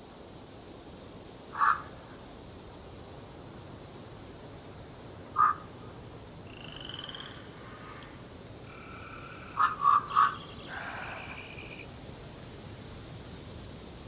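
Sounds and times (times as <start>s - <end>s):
steady background hiss: 0.0s - 14.0s
loud croaking animal calls: 1.5s - 2.0s, 5.3s - 5.7s, 6.5s - 11.9s
high-pitched bird calls: 8.8s - 11.8s.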